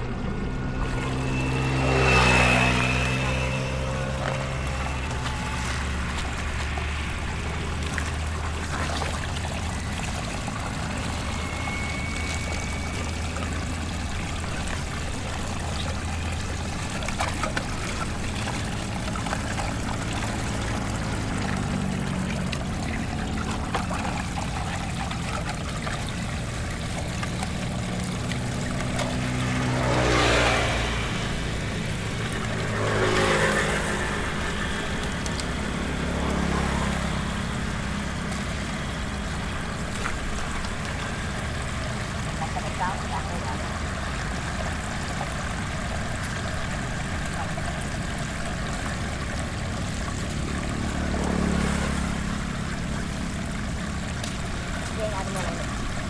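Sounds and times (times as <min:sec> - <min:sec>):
flowing floodwater: 0:00.0 - 0:56.0
vehicle engines humming: 0:00.0 - 0:56.0
vehicles passing close by: 0:00.0 - 0:56.0.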